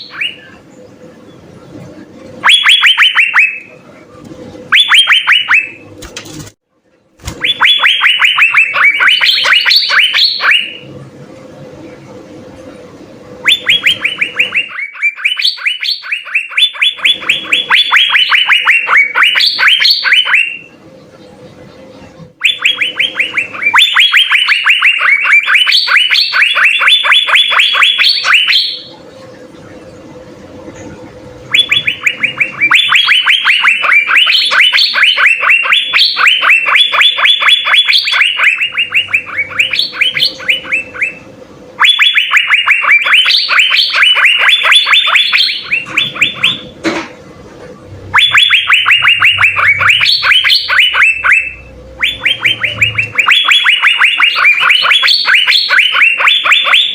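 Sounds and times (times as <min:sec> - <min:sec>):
faint steady hum: 0:00.0 - 0:56.9
bird singing rapid sharp notes: 0:07.3 - 0:10.8, 0:31.4 - 0:41.2, 0:48.1 - 0:56.9.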